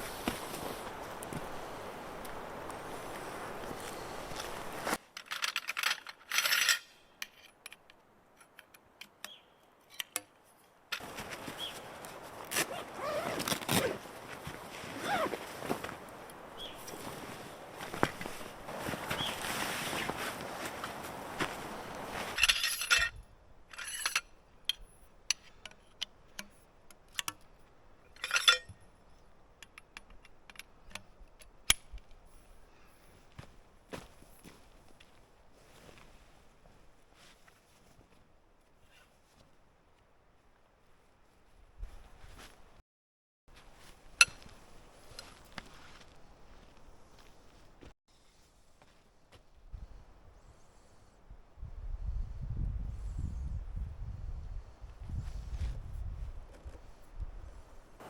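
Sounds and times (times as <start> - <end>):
outdoor background noise: 0.0 - 42.8, 43.5 - 58.0
small gear clinking and rattling: 5.0 - 8.8, 22.2 - 33.2
gear rustling: 10.9 - 24.3.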